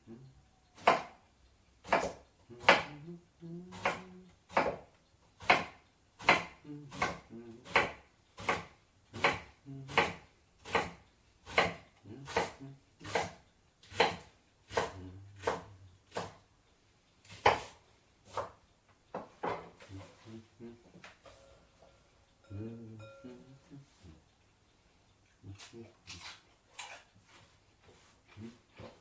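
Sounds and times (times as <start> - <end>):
knife chopping on cutting board: 0.8 - 1.2, 1.8 - 3.0, 3.7 - 16.4, 17.3 - 18.6.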